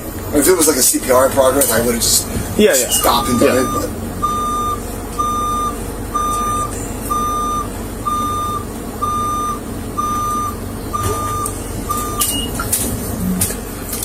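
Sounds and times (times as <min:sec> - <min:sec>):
low engine rumble: 0:00.0 - 0:14.0
truck reversing alarm beeping: 0:02.6 - 0:13.4.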